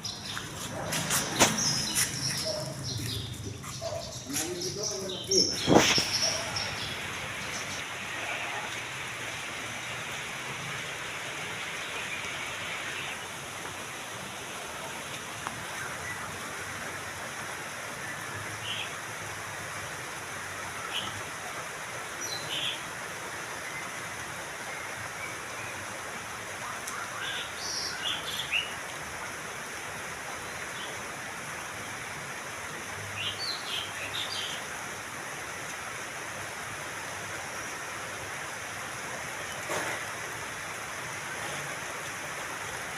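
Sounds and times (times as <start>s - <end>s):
birds chirping: 0.0s - 8.4s
steady rushing hiss: 0.0s - 42.9s.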